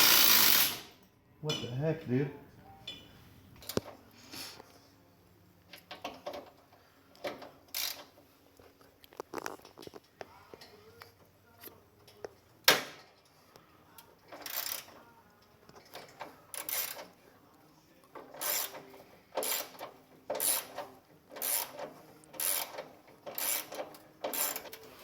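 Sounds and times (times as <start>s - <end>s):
ratchet wrench clicking: 0.0s - 1.0s, 7.2s - 8.2s, 14.3s - 15.0s, 15.8s - 17.2s, 18.2s - 24.8s.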